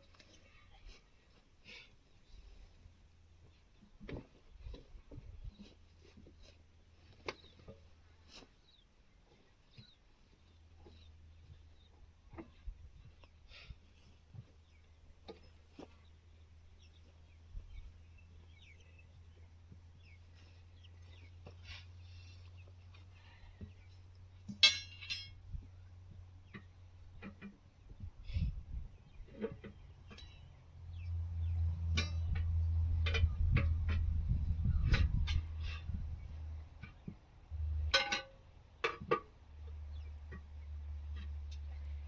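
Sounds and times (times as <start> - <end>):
steady low hum: 0.0 - 42.0
metallic clink: 24.5 - 25.5.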